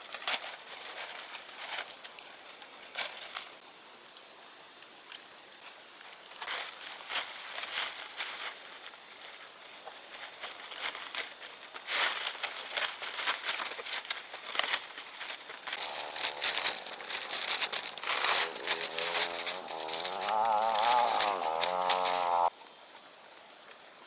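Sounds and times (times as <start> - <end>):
crackling and rustling: 0.0 - 3.6, 6.0 - 22.5.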